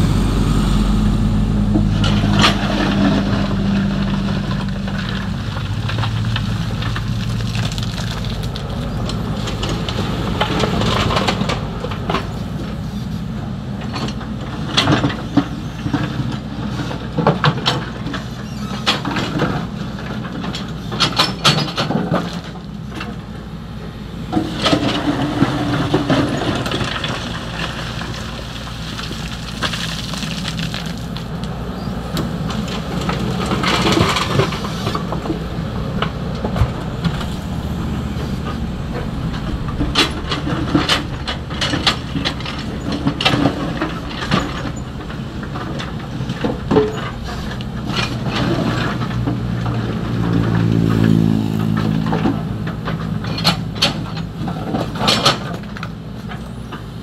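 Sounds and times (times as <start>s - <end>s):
excavator diesel engine running: 0.0s - 57.0s
gravel hissing and rattling: 0.0s - 57.0s
excavator bucket clanking: 1.6s - 13.0s, 13.8s - 23.4s, 24.3s - 57.0s.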